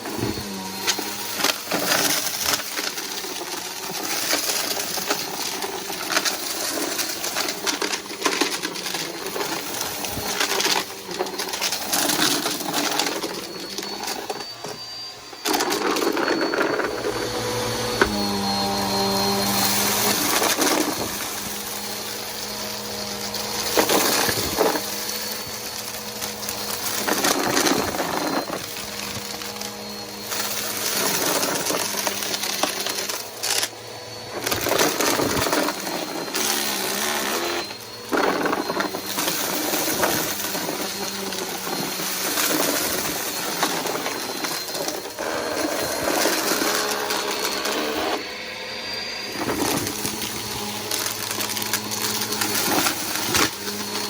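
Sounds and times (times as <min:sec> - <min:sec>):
debris rattling in vacuum: 0:00.0 - 0:54.0
vacuum cleaner motor hum: 0:00.0 - 0:54.0
faint high whistle: 0:09.2 - 0:51.4.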